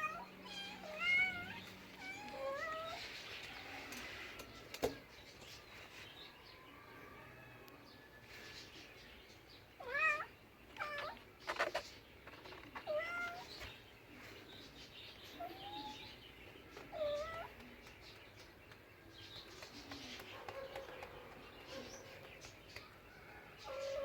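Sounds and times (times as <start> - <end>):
cat meowing: 0.0 - 3.0, 9.8 - 11.8, 12.5 - 13.5, 16.9 - 17.5.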